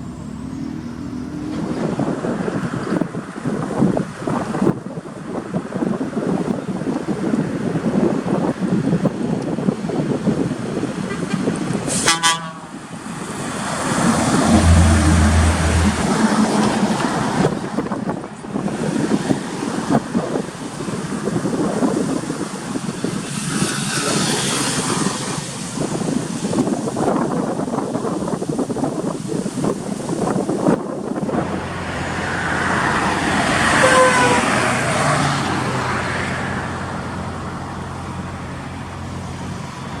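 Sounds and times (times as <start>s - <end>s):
vehicle driving past: 0.0s - 2.7s, 13.0s - 17.4s
vehicle passing: 0.0s - 3.0s, 12.6s - 17.5s, 31.5s - 40.0s
short horn toot: 11.1s - 12.8s, 33.7s - 34.6s
falling whine: 13.5s - 17.0s.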